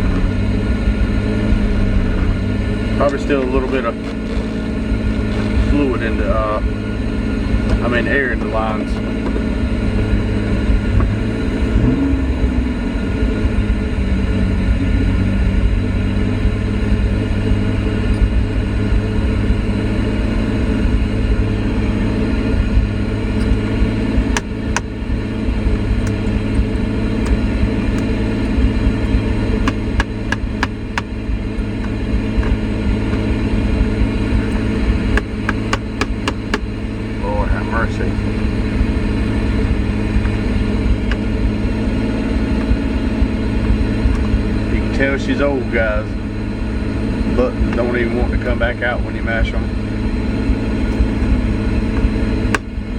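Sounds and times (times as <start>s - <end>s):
car engine running: 0.0s - 52.9s
sharp clicks: 3.0s - 5.9s, 27.2s - 32.6s, 35.2s - 36.7s.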